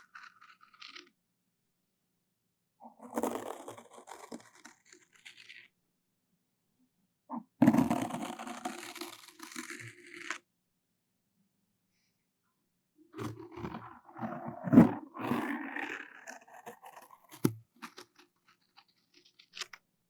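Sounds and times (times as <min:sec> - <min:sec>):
floss scratching on microphone: 0:02.9 - 0:05.6, 0:07.3 - 0:10.4, 0:13.2 - 0:19.8.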